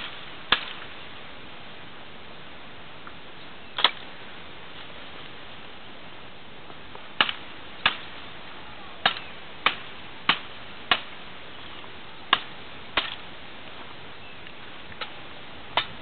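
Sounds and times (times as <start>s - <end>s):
axe chopping firewood: 0.0s - 0.9s, 3.8s - 4.0s, 7.2s - 8.1s, 9.0s - 11.2s, 12.3s - 13.3s, 15.8s - 16.0s.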